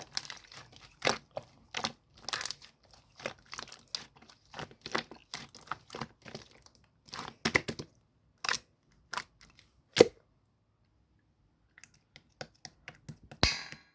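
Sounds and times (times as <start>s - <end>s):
slime squished and stretched: 0.0s - 10.2s.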